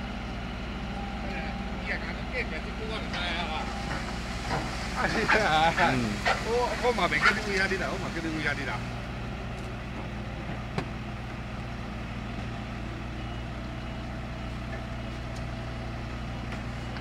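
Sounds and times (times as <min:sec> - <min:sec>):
diesel truck engine idling: 0:00.0 - 0:17.0
faint high beeping: 0:00.8 - 0:04.1.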